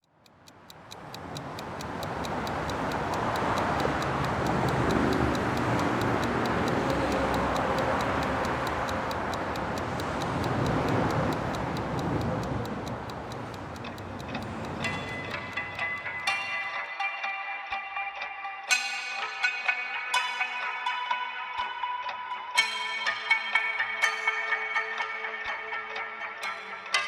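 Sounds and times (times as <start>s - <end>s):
clock-like ticking: 0.0s - 17.0s.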